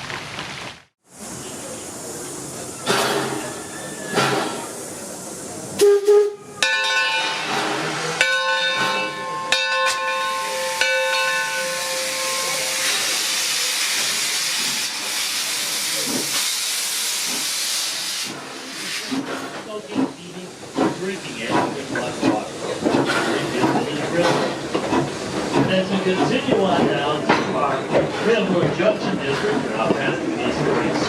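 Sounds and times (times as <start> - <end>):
steam hissing: 1.1 - 6.4, 10.0 - 30.9
steam locomotive whistle: 5.8 - 7.4.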